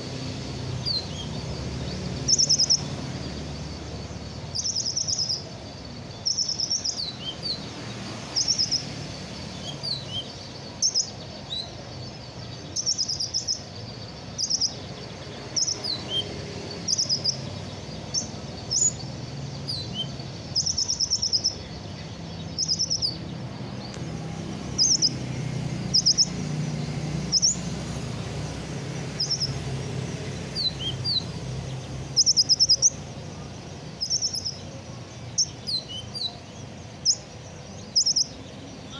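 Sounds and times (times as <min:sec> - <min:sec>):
sunbird singing high chirps: 0:00.0 - 0:38.9.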